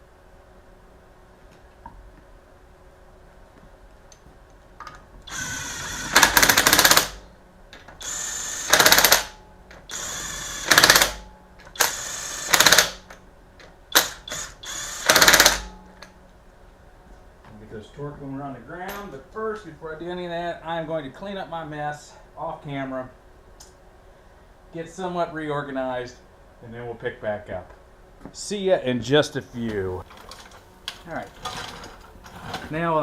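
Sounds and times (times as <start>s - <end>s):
impact wrench hammering: 5.3s - 7.2s, 8.0s - 13.1s, 13.9s - 16.1s.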